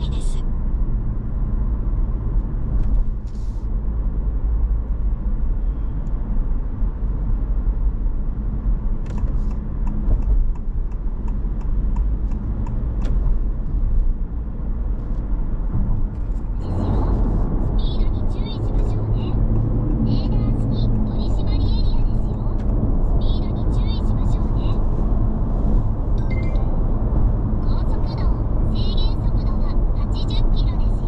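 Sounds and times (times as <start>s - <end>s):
road and tyre rumble in car: 0.0s - 31.0s.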